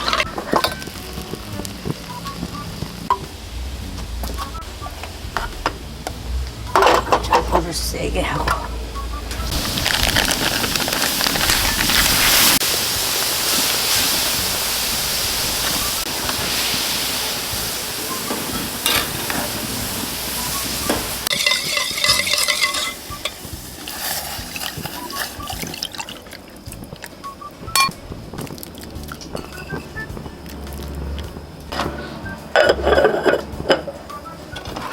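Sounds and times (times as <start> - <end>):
meat sizzling in a pan: 9.5 - 26.0
utensil clinking against pan: 21.3 - 25.8.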